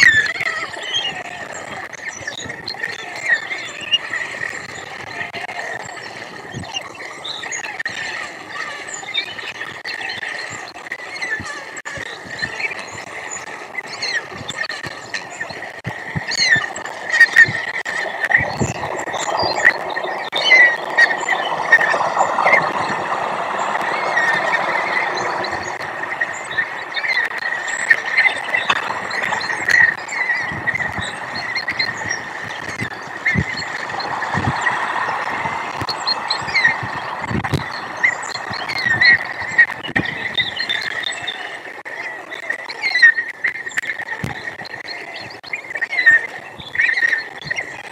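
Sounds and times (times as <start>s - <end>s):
frogs croaking: 0.0s - 47.8s
small birds chirping: 0.0s - 47.9s.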